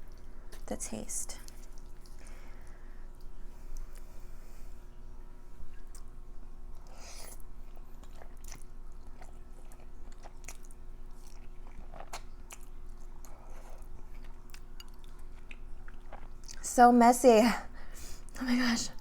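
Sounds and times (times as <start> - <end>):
chewing with wet mouth clicks: 1.4 - 4.1, 5.6 - 16.7.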